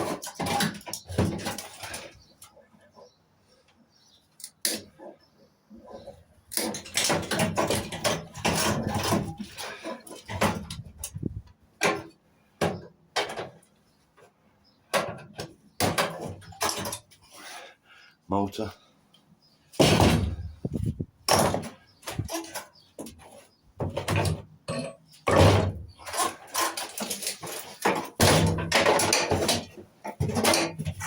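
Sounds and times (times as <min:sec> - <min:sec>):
metal parts and tools clattering: 0:00.0 - 0:02.6, 0:05.9 - 0:12.1, 0:19.8 - 0:31.0.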